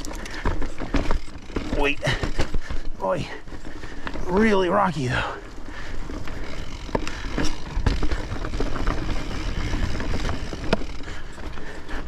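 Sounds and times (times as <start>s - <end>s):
sharp knocks and rattles: 0.0s - 4.6s
bike tyres rumbling over rocks: 0.0s - 12.0s.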